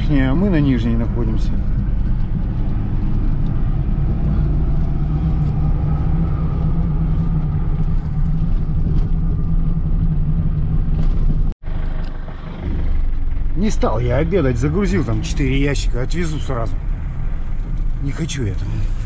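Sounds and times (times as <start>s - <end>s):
car engine drone and road noise: 0.0s - 19.0s.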